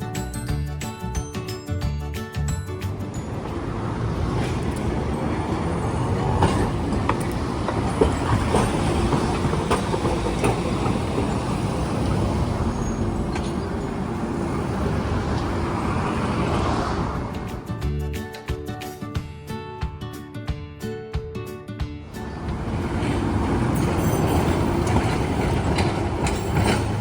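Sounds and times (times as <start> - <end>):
streetcar wheels rumbling on rail: 2.2 - 18.0, 22.0 - 27.0.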